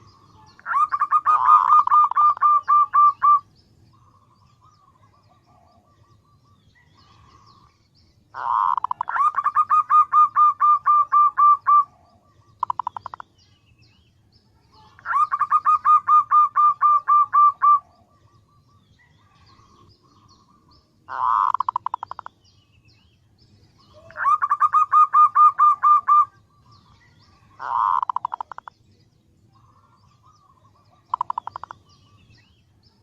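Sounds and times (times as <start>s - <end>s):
dove cooing: 0.0s - 4.3s, 8.4s - 13.2s, 14.9s - 19.6s, 21.1s - 22.3s, 23.8s - 26.6s, 27.6s - 28.7s, 29.6s - 31.8s
bird trill: 0.0s - 33.0s.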